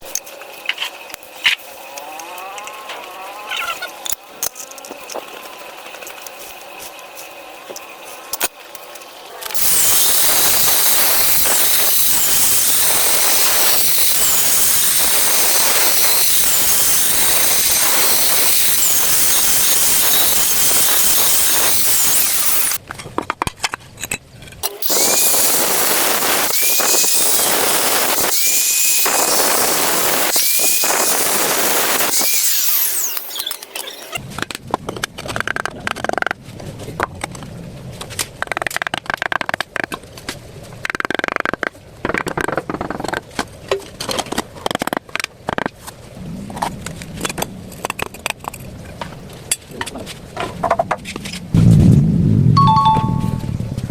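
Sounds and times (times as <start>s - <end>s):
power tool grinding: 9.6s - 22.8s, 24.6s - 34.2s
high whine: 51.5s - 53.9s.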